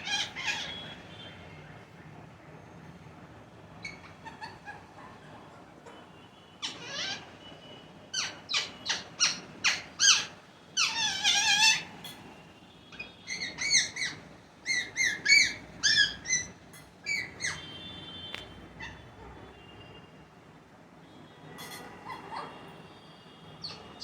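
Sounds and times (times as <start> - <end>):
parrots squawking: 0.0 - 1.0, 3.8 - 5.1, 6.6 - 7.4, 8.1 - 12.2, 12.9 - 17.8, 21.6 - 22.7, 23.6 - 24.0.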